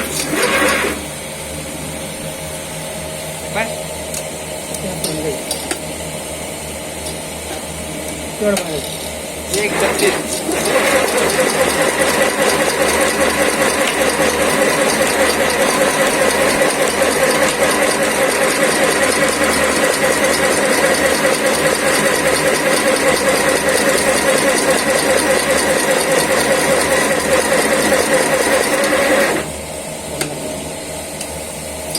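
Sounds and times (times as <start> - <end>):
machine clattering: 9.5 - 29.4.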